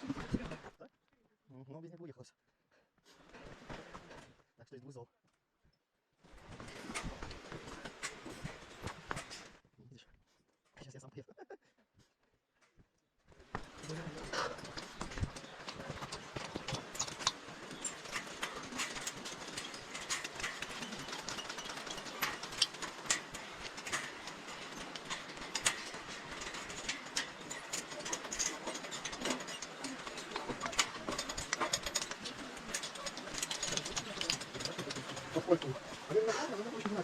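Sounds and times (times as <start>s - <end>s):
footsteps and gear knocking on rocks: 6.4s - 9.6s, 13.4s - 37.0s.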